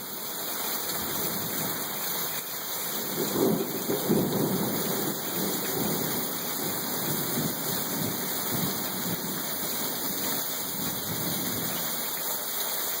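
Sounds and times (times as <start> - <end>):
heavy rain pouring: 0.0 - 13.0
low rumble of thunder: 3.0 - 11.8.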